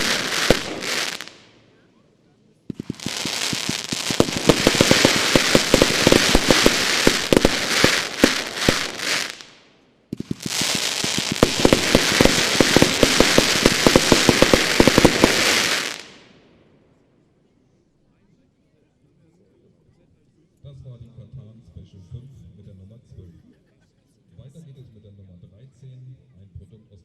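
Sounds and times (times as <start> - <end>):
firework battery firing shots: 0.0 - 1.6, 2.7 - 16.3
steady firework hiss: 0.0 - 1.6, 2.7 - 16.3.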